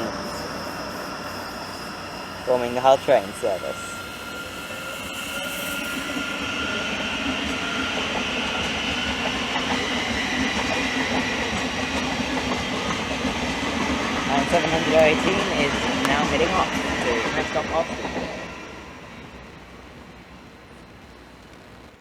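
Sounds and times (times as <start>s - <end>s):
diesel train passing: 0.0s - 22.0s.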